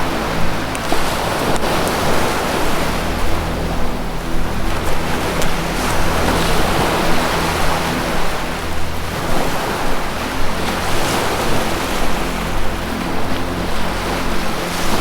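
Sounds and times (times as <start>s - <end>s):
ocean waves surf: 0.0s - 15.0s
relaxation music drone: 0.0s - 15.0s.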